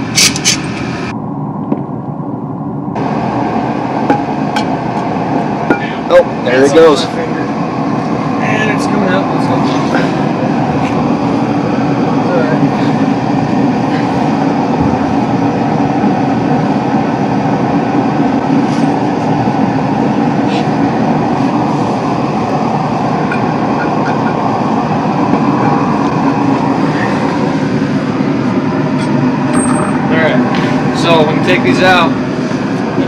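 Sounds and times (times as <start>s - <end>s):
loud mechanical rumble: 0.0s - 33.0s.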